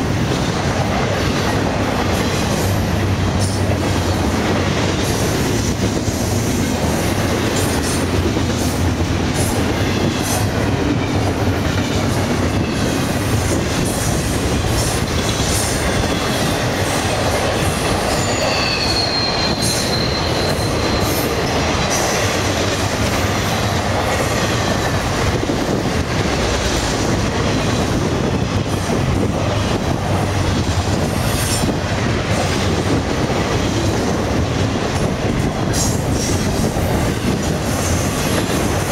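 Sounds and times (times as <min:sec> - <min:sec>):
freight train wheels rumbling: 0:00.0 - 0:38.9
high-pitched wheel squeal: 0:18.1 - 0:21.4.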